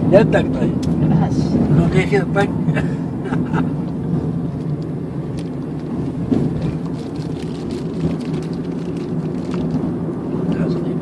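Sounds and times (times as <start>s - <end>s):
road noise: 0.0s - 11.0s
vehicle engine drone: 0.0s - 11.0s.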